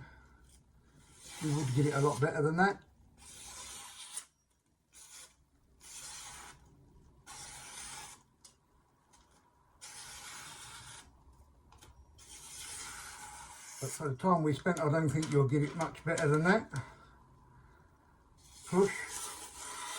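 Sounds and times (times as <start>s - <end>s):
knife slicing paper: 1.1s - 2.4s.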